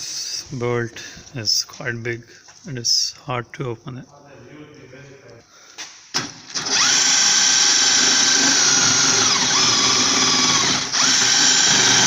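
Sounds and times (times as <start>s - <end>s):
electric power tool whining: 6.2s - 12.0s.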